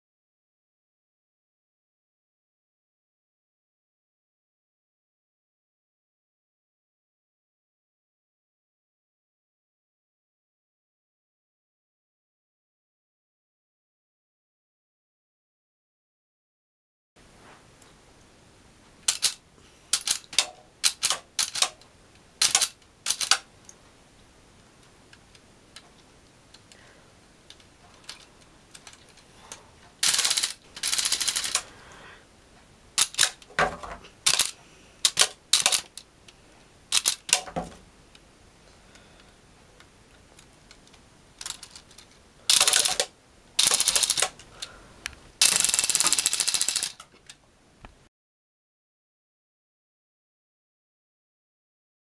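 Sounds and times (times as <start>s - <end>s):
rubber-band gun firing: 45.4s - 46.9s.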